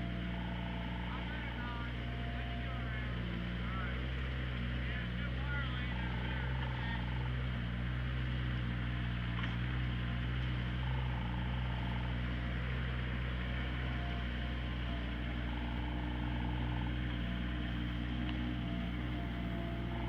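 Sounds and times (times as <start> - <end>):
diesel engine running: 0.0 - 20.0
faint high whine: 0.0 - 20.0.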